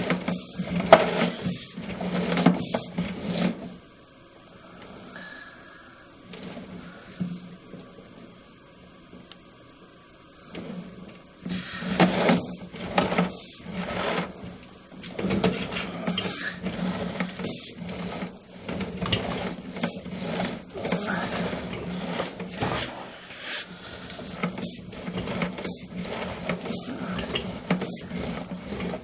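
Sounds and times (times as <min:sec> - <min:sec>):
steady low hum: 0:00.0 - 0:29.0
plumbing cable rattling in drain: 0:10.6 - 0:23.0, 0:23.7 - 0:29.0.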